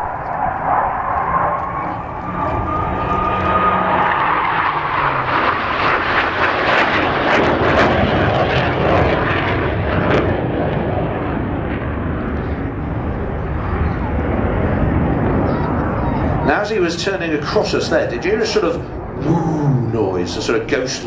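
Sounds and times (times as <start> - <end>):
jet engine roar: 0.0 - 21.0.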